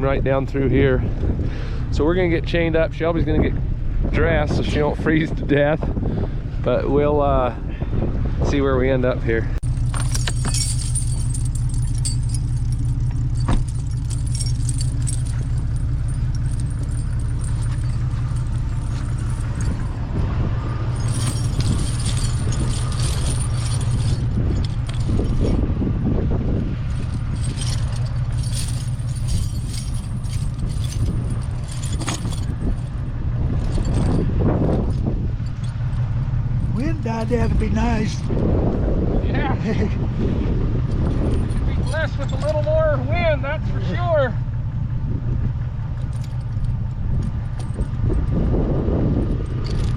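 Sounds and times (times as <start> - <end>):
truck engine idling: 9.5 - 49.9
metal tire chains clinking: 9.6 - 38.5, 40.8 - 44.9, 45.6 - 49.9.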